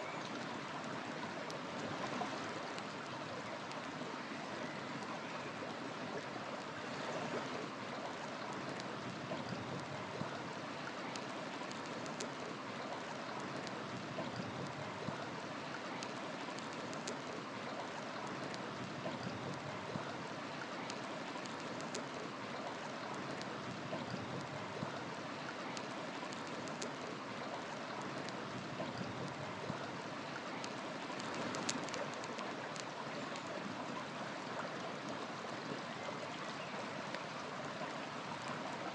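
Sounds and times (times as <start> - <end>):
river flowing: 0.0 - 38.9
wood fire crackling: 11.0 - 12.7, 13.3 - 17.4, 20.8 - 22.4, 25.6 - 33.5.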